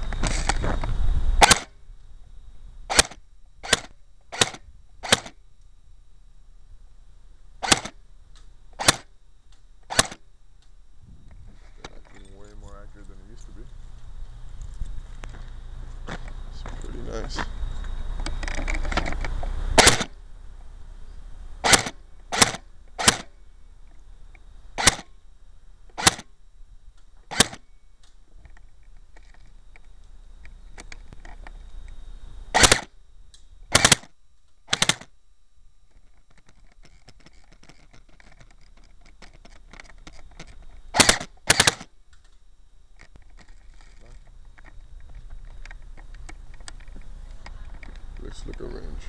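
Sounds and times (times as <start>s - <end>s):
rustle: 0.0s - 49.0s
airsoft rifle shots: 1.4s - 1.7s, 2.9s - 5.4s, 7.6s - 8.0s, 8.8s - 9.1s, 9.9s - 10.2s, 19.8s - 20.1s, 21.6s - 23.3s, 24.8s - 25.1s, 25.9s - 26.3s, 27.3s - 27.6s, 32.5s - 32.9s, 33.7s - 34.1s, 34.7s - 35.1s, 40.9s - 41.9s.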